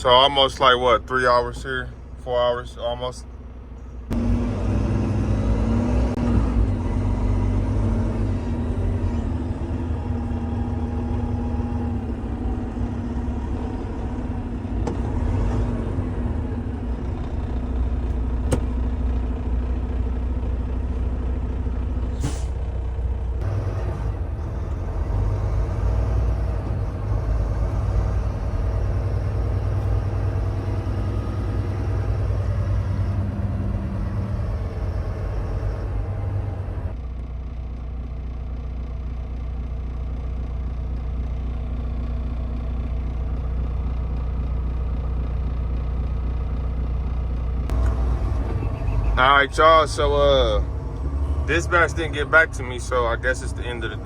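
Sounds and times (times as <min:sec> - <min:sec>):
truck diesel engine running: 0:00.0 - 0:54.0
air brakes hissing: 0:22.1 - 0:22.7.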